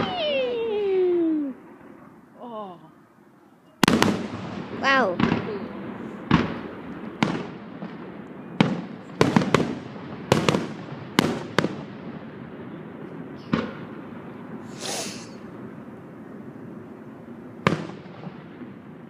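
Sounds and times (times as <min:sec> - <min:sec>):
fireworks bangs echoing: 0:03.8 - 0:19.0
firework hiss: 0:14.6 - 0:15.6.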